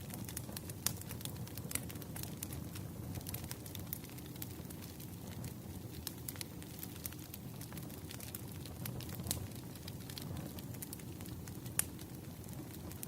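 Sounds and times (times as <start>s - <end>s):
burning wood crackling and popping: 0.0s - 13.0s
campfire flames rumbling: 0.0s - 13.0s.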